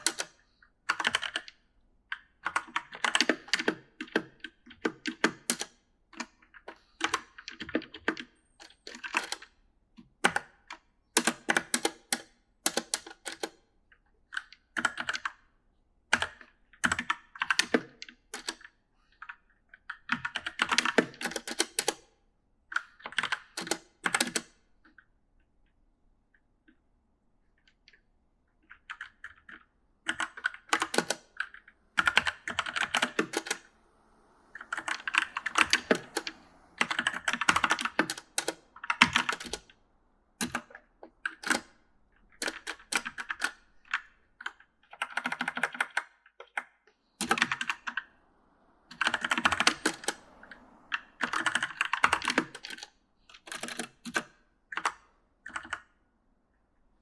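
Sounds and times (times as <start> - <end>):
mechanical keyboard typing: 0.9 - 1.5, 14.3 - 15.4, 22.7 - 24.5, 28.6 - 39.8, 40.4 - 41.7, 42.4 - 48.1, 48.9 - 50.3, 50.9 - 55.9.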